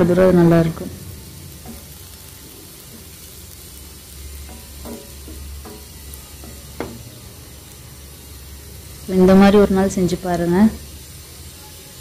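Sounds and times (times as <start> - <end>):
food sizzling in oil: 0.0 - 12.0
spatula scraping pan: 1.5 - 7.8.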